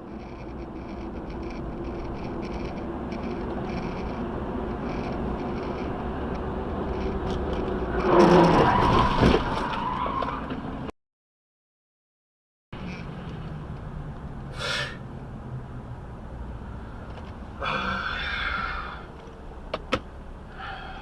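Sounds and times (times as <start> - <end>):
high steady ringing tone: 0.0 - 6.0
vehicle driving noise: 0.0 - 10.9, 12.8 - 21.0.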